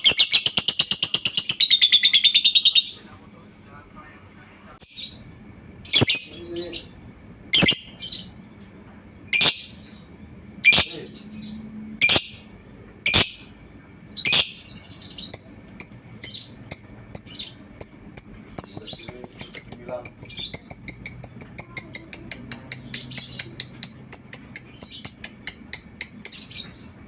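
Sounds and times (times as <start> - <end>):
bird chirping and chattering: 0.0 - 3.2, 4.8 - 8.4, 9.3 - 27.0
bird squawking: 7.6 - 8.3, 9.3 - 10.0, 10.6 - 12.5, 14.2 - 15.6.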